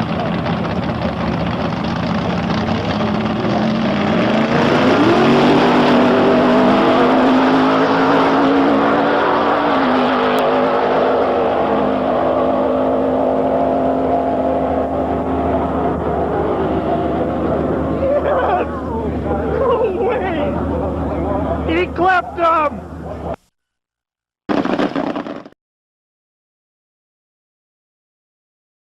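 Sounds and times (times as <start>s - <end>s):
truck engine revving: 0.0s - 23.4s.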